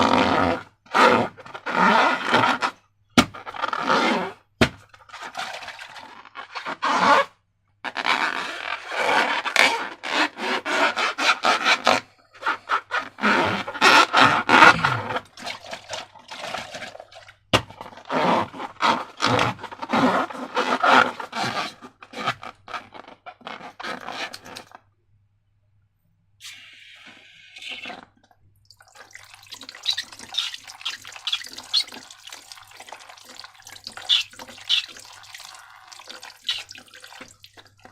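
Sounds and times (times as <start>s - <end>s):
slime materials scraping: 0.0s - 17.0s, 17.8s - 24.8s, 29.7s - 37.9s.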